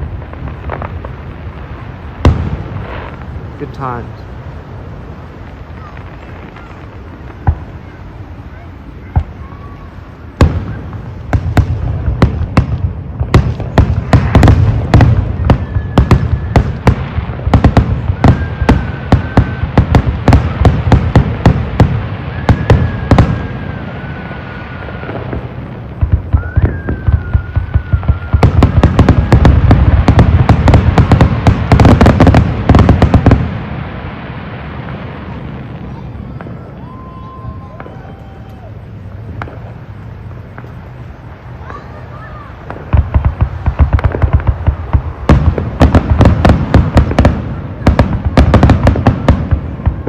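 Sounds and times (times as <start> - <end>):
fireworks bangs and crackling: 0.0 - 50.0.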